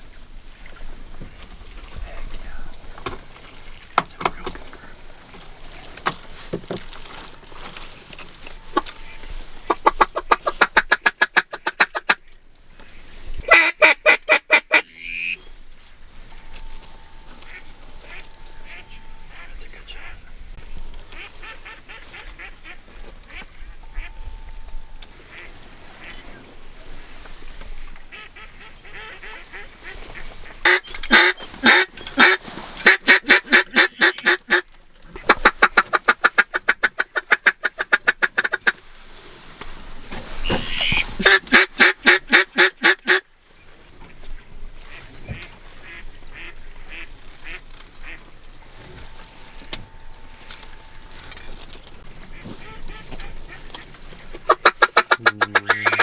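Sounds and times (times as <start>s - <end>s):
duck call quacking: 8.7s - 12.2s, 13.4s - 15.4s, 21.1s - 24.2s, 28.1s - 34.6s, 35.2s - 38.8s, 40.5s - 43.2s, 45.8s - 48.2s, 54.5s - 56.0s.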